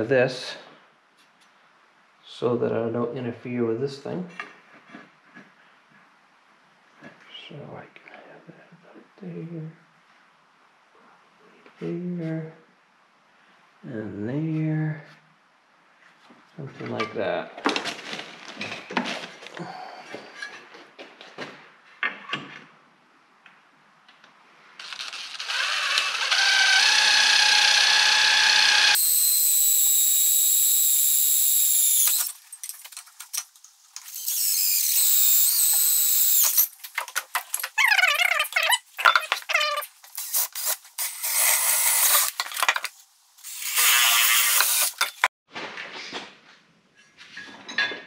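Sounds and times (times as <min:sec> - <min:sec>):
power tool motor whining: 0:24.8 - 0:32.3, 0:34.0 - 0:36.7, 0:40.2 - 0:42.4, 0:43.4 - 0:45.3.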